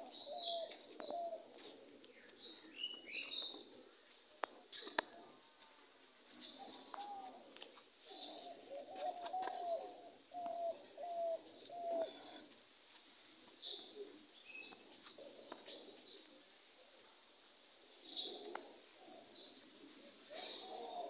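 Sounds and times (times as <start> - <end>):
small birds chirping: 0.0 - 16.4
bird hooting: 8.1 - 12.5, 20.2 - 21.0.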